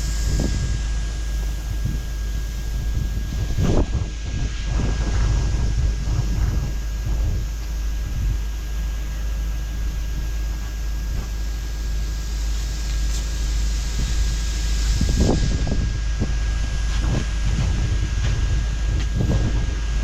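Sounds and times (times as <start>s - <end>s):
low rumble: 0.0s - 20.0s
sandblasting nozzle hissing: 0.0s - 20.0s.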